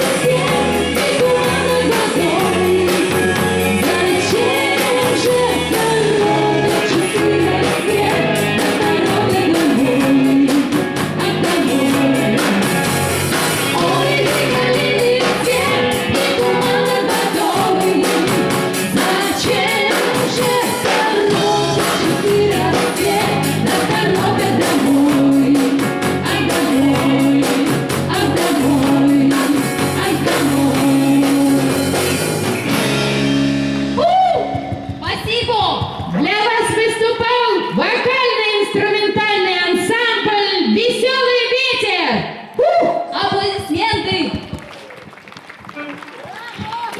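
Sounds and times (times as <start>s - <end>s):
person singing: 0.0s - 12.8s, 13.7s - 32.4s
live rock band playing: 0.0s - 36.8s
drum beat: 6.7s - 33.3s, 33.9s - 36.8s, 43.4s - 44.7s.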